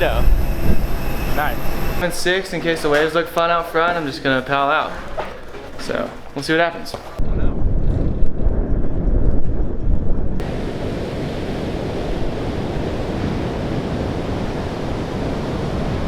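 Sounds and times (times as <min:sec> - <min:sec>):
wind buffeting microphone: 0:00.0 - 0:02.0, 0:07.1 - 0:16.0
ocean surf: 0:10.4 - 0:16.0.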